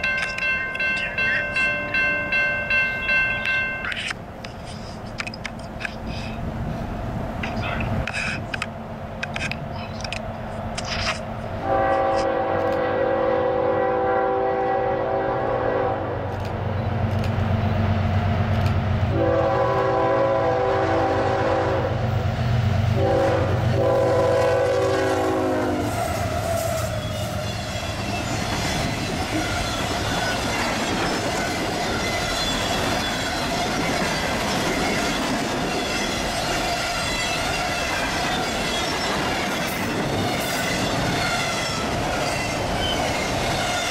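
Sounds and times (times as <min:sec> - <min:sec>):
train cars rumbling: 0:00.0 - 0:43.9
train horn blasts: 0:11.6 - 0:16.3, 0:19.1 - 0:22.0, 0:23.0 - 0:28.3.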